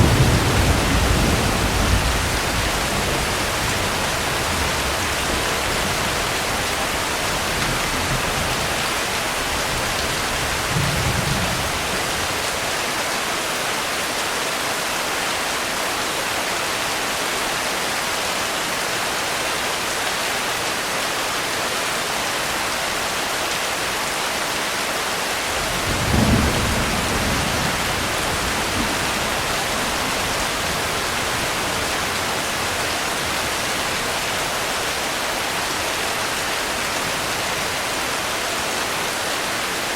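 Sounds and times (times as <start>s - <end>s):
low thunder rumbles: 0.0s - 12.4s, 25.6s - 34.3s
steady rain: 0.0s - 39.9s.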